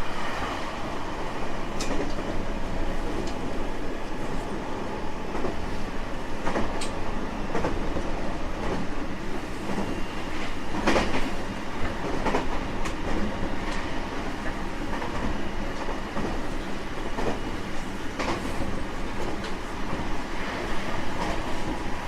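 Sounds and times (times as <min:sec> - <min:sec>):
train wheels rumbling on rail: 0:00.0 - 0:22.0
clacks over rail joints: 0:18.2 - 0:18.6.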